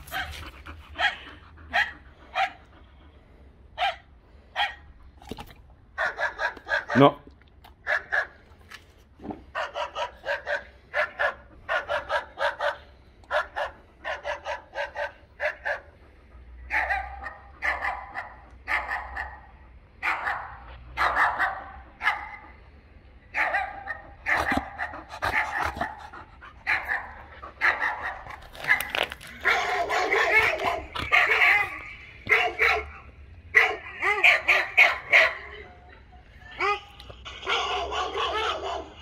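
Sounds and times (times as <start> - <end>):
dog barking: 0.0 - 0.4, 1.0 - 2.6, 3.8 - 4.8, 6.0 - 7.1, 7.8 - 8.4, 9.5 - 15.9, 16.7 - 22.5, 23.3 - 35.6, 36.6 - 39.0.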